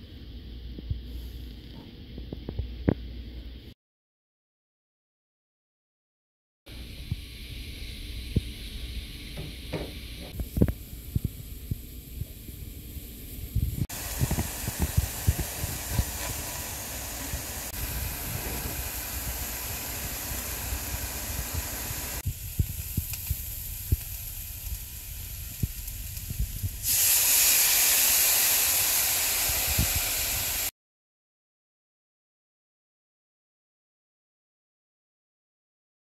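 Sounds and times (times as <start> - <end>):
mushrooms sizzling in skillet: 13.3 - 30.7
spatula scraping pan: 15.9 - 16.8.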